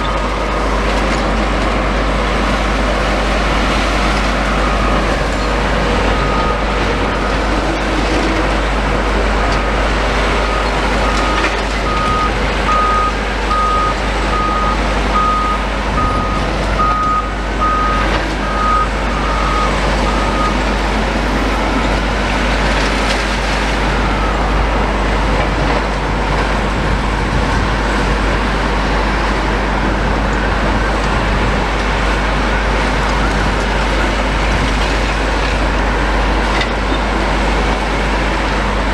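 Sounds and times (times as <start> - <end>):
heavy demolition machinery running: 0.0 - 38.9
reversing alarm beeping: 4.4 - 7.6, 9.6 - 20.7, 24.0 - 24.6.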